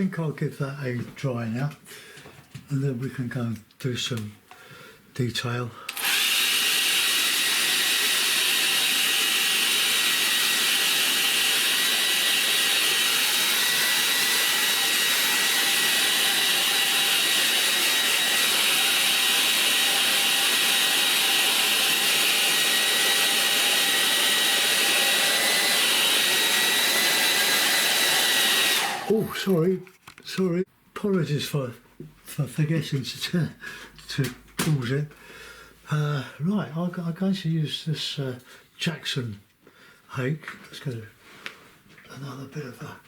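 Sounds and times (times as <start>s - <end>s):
hair dryer blowing with high whine: 5.9s - 29.4s.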